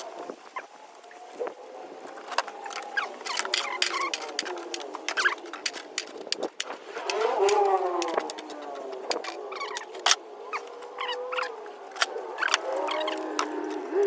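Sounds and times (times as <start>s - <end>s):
metal squeaking and scraping: 9.2s - 13.6s.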